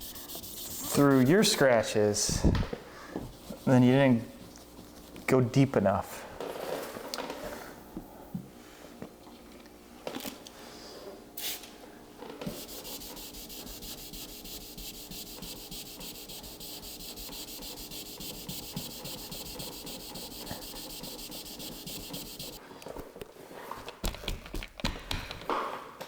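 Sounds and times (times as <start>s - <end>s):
wet sanding scrubbing strokes: 0.0s - 1.6s, 12.5s - 22.6s.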